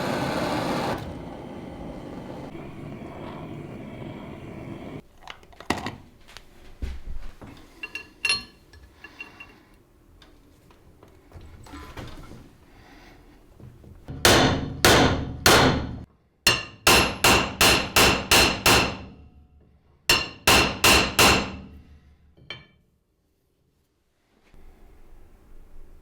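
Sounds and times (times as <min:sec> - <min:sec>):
hammer striking metal: 0:14.1 - 0:19.2, 0:20.1 - 0:21.8.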